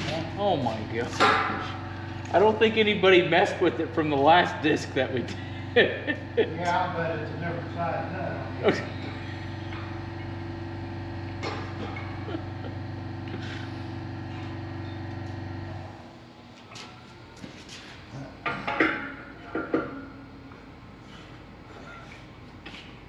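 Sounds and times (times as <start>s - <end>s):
machine humming: 0.0s - 22.8s
parts knocking and clattering: 1.0s - 1.8s, 18.4s - 20.2s.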